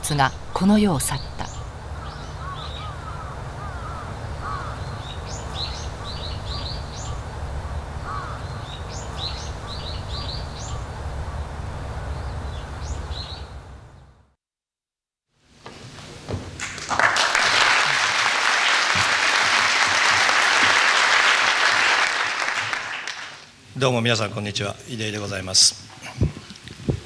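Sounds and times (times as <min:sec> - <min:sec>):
birds chirping: 0:00.0 - 0:14.2
steady low rumble: 0:00.0 - 0:14.2.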